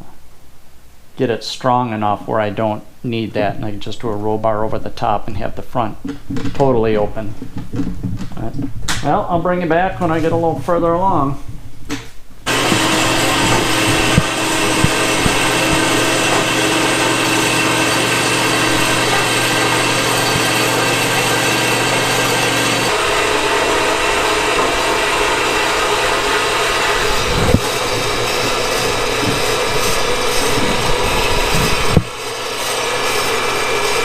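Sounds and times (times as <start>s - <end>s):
power tool humming: 12.5s - 34.0s.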